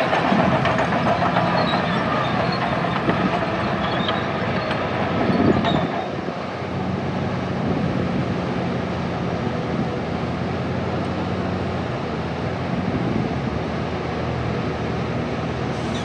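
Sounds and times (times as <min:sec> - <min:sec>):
machinery clanks and rattles: 0:00.0 - 0:07.0, 0:15.7 - 0:16.0
diesel engine drone: 0:00.0 - 0:16.0.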